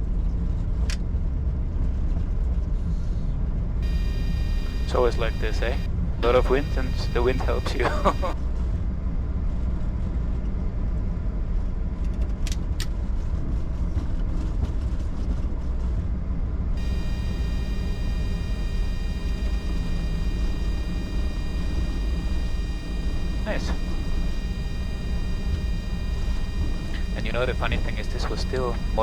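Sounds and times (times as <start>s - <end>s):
high-pitched tones: 3.8s - 8.4s, 16.8s - 29.0s.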